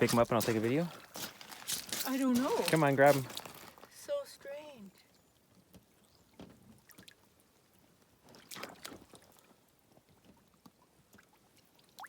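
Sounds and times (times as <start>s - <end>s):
water splash: 8.3s - 9.4s.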